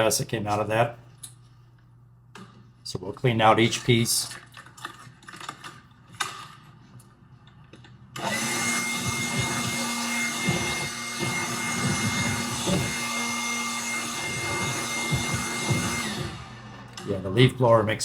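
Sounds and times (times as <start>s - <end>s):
leaf blower whining: 8.2s - 17.1s.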